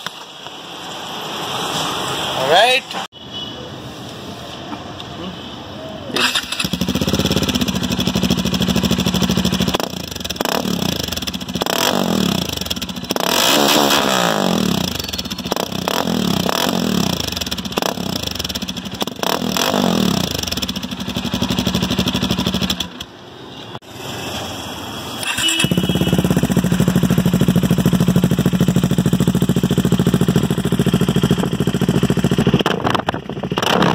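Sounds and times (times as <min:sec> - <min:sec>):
motorcycle engine revving: 0:06.2 - 0:23.2, 0:25.2 - 0:33.9.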